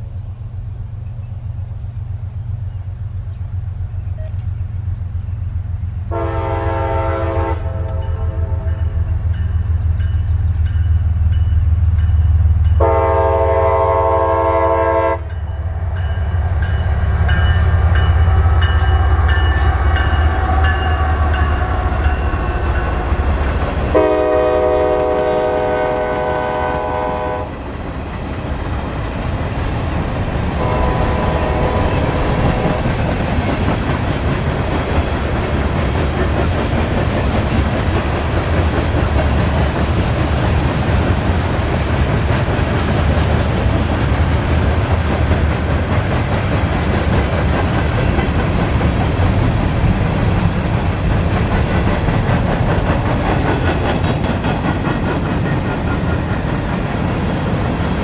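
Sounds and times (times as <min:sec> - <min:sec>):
locomotive horn blasts: 0:06.1 - 0:08.9, 0:12.8 - 0:15.4, 0:23.9 - 0:27.5, 0:30.6 - 0:32.8
freight cars clattering on rails: 0:27.6 - 0:58.0.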